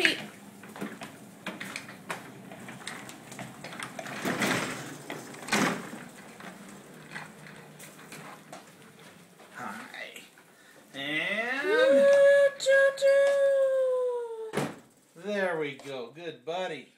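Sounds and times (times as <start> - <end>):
dishwasher rolling on casters: 0.0 - 13.4.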